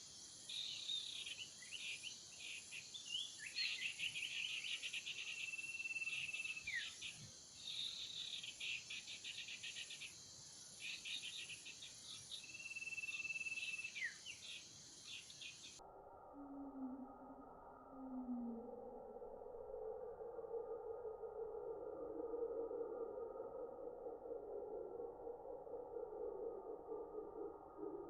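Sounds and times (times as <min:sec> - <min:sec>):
high insect drone: 0:00.0 - 0:16.5.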